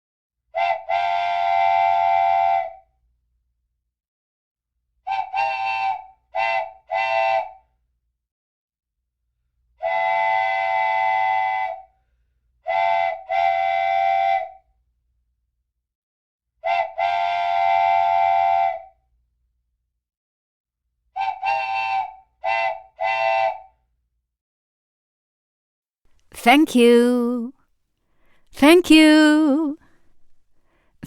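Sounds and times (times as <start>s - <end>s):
train whistle blasts: 0.6s - 2.8s, 5.1s - 7.6s, 9.8s - 11.8s, 12.7s - 14.6s, 16.6s - 18.9s, 21.2s - 23.7s.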